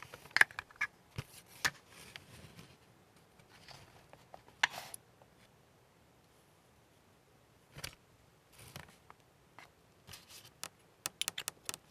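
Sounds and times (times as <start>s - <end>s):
small objects clicking and tapping: 10.6s - 11.9s.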